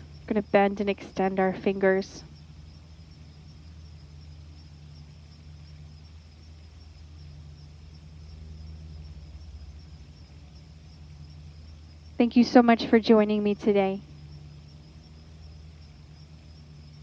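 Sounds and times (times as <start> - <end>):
high insect trill: 0.0 - 17.0.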